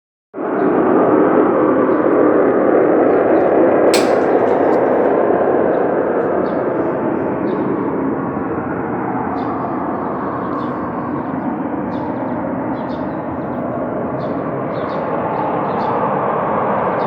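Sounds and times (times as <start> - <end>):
sharp click: 4.0 - 5.1.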